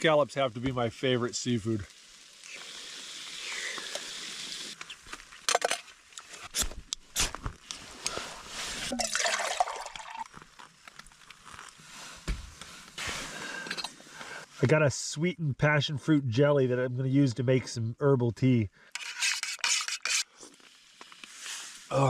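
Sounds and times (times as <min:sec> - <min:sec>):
liquid pouring and sloshing: 0:08.8 - 0:10.4.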